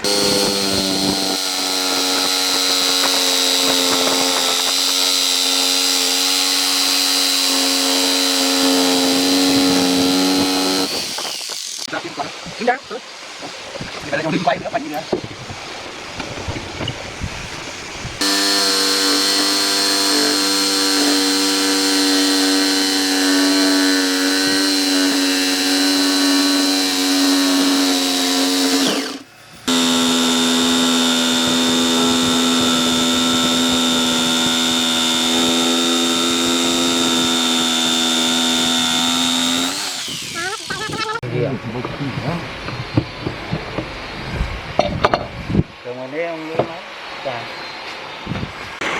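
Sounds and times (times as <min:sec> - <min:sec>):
power tool motor running: 0:00.0 - 0:11.9, 0:18.2 - 0:41.2.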